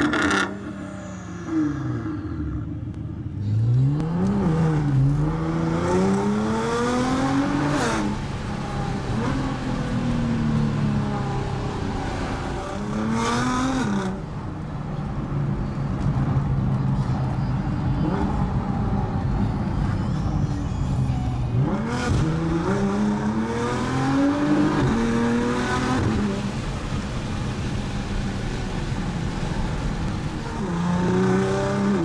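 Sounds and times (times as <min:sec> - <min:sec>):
car engine accelerating hard: 0:21.5 - 0:32.0.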